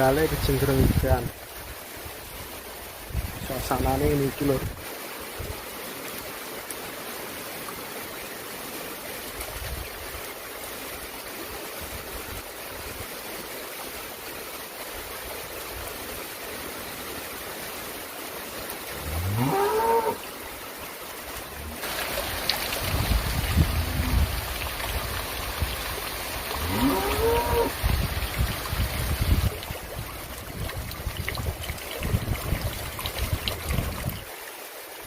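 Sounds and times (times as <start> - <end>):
heavy rain falling: 15.7 - 34.8
animal call rising in pitch: 19.0 - 20.2, 23.6 - 24.3, 26.6 - 27.8.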